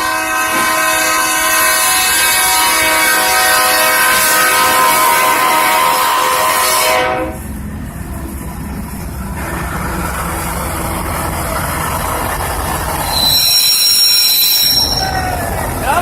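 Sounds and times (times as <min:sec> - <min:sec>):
train horn chord: 0:00.0 - 0:07.5
train rumbling along tracks: 0:00.0 - 0:16.0.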